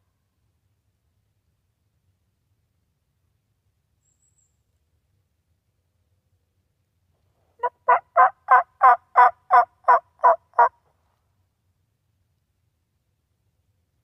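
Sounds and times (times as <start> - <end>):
turkey yelping: 7.6 - 10.7.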